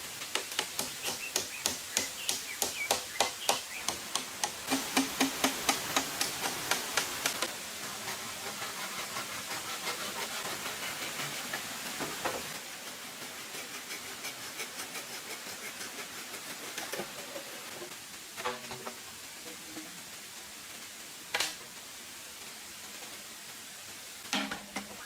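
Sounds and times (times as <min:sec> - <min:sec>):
steady hiss: 0:00.0 - 0:25.0
rapid sharp knocks: 0:00.3 - 0:07.4.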